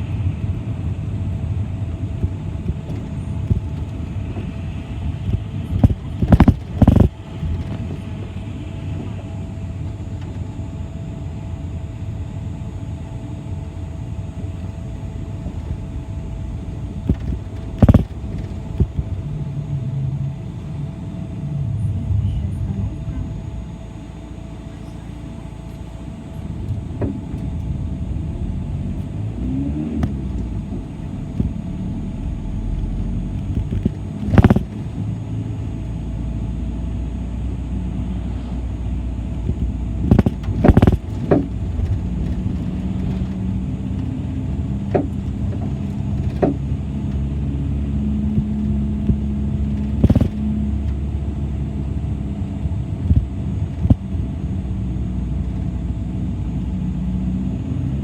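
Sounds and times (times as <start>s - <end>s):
bus engine and road rumble: 0.0s - 58.0s
knocks and rattles from bus body: 1.9s - 9.2s, 14.4s - 19.4s, 25.8s - 28.2s, 28.8s - 35.2s, 39.3s - 54.2s.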